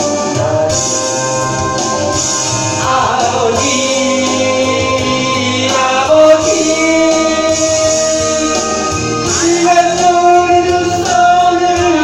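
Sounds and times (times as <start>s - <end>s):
instrumental accompaniment: 0.0s - 12.0s
man and woman singing worship song: 2.8s - 12.0s.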